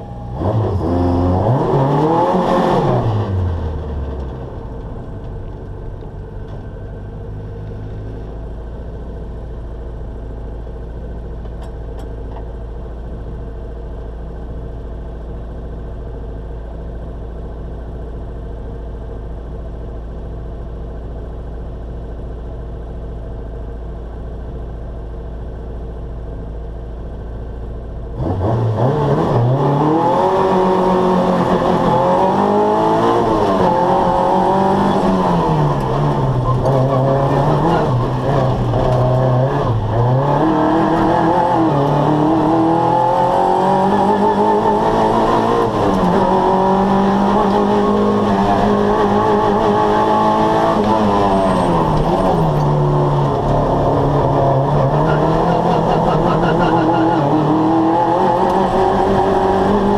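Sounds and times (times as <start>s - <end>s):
race car engine revving: 0.0s - 4.3s, 28.2s - 59.9s.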